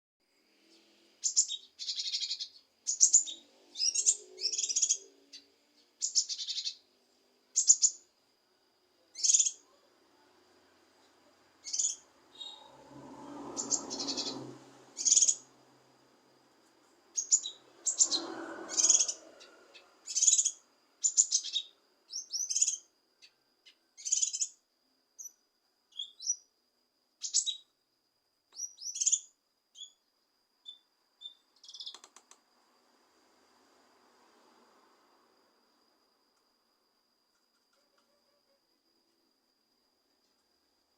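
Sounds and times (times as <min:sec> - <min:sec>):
bird chirping and whistling: 0:01.2 - 0:05.0, 0:11.6 - 0:12.7, 0:13.6 - 0:14.4, 0:15.0 - 0:15.4, 0:17.2 - 0:19.2, 0:20.0 - 0:22.8.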